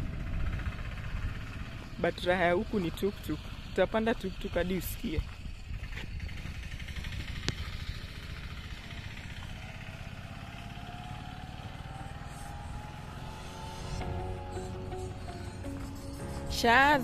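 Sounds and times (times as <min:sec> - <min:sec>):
low rumble: 0:00.0 - 0:02.0, 0:11.3 - 0:17.0
small vehicle engine passing: 0:00.0 - 0:17.0
music: 0:13.6 - 0:17.0.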